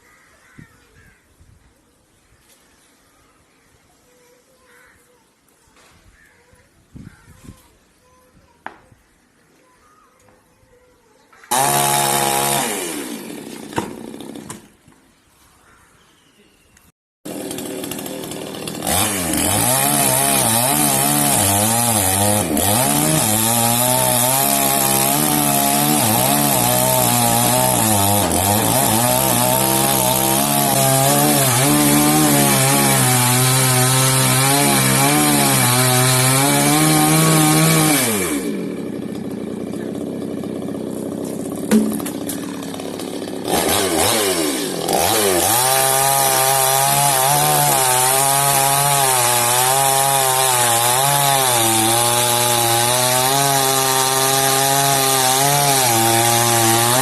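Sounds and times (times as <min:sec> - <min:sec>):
chainsaw cutting wood: 0:11.4 - 0:15.0, 0:17.2 - 0:57.0.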